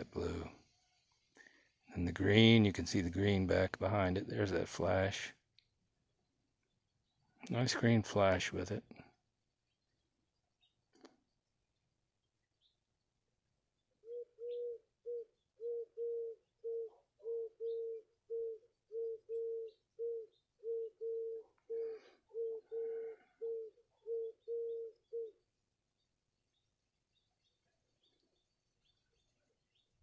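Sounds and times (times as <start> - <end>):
bird hooting: 14.0 - 25.5.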